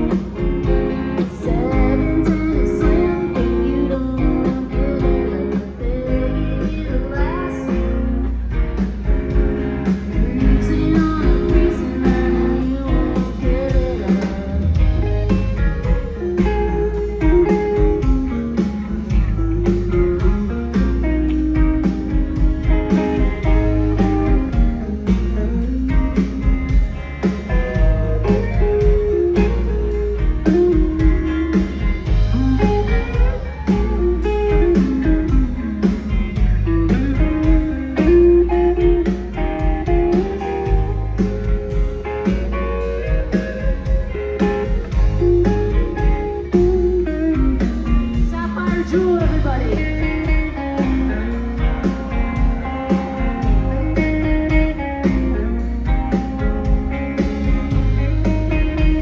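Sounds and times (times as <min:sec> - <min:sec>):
rock band playing: 0:00.0 - 0:59.0.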